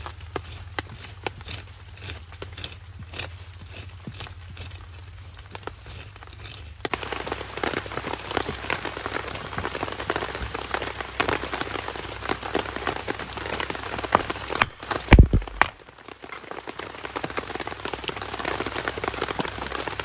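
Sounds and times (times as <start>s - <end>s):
rain pattering on a tarp: 0.0s - 20.0s.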